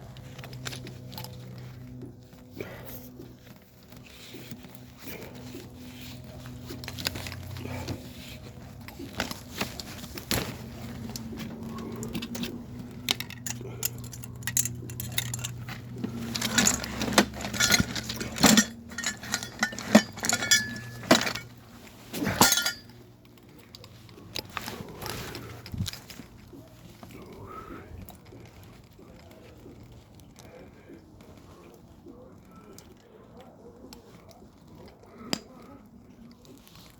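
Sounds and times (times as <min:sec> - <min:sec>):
low steady hum: 0:00.0 - 0:36.9
metal tools clinking: 0:04.9 - 0:26.1.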